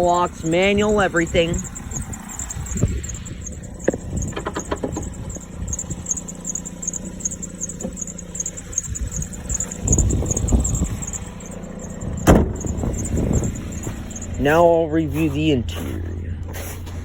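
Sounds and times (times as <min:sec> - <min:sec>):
car engine idling: 0:00.0 - 0:17.0
handling noise: 0:01.3 - 0:14.4.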